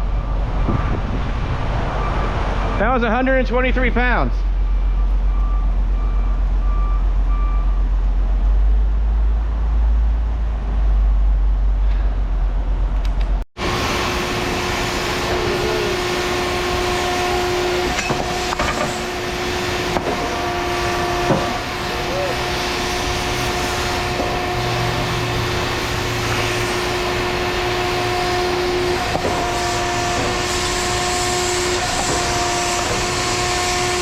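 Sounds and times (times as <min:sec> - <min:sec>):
reversing alarm beeping: 0:00.0 - 0:01.2, 0:01.9 - 0:07.9
heavy vehicle engine rumbling: 0:00.0 - 0:34.0
steady engine drone: 0:00.0 - 0:34.0.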